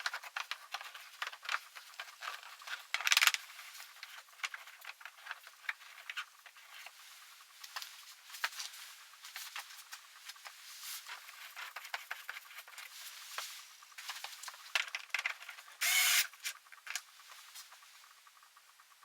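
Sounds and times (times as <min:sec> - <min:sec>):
small parts and tools clicking: 0:00.0 - 0:07.0, 0:09.4 - 0:17.3.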